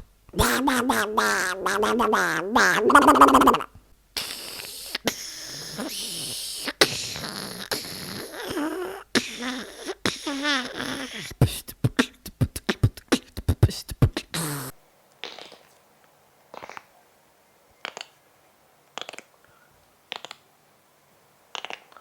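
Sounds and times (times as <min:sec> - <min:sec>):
man making mouth sound effects: 0:00.0 - 0:15.6, 0:19.0 - 0:19.3
long mouth hiss: 0:00.0 - 0:15.9, 0:16.5 - 0:17.0, 0:18.9 - 0:20.5, 0:21.5 - 0:22.0
mouth clicks and pops: 0:00.3 - 0:05.2, 0:06.5 - 0:15.7, 0:16.5 - 0:16.9, 0:17.8 - 0:18.2, 0:18.9 - 0:19.4, 0:20.1 - 0:20.4, 0:21.5 - 0:22.0
warbling pitched vocal sound: 0:00.4 - 0:03.7.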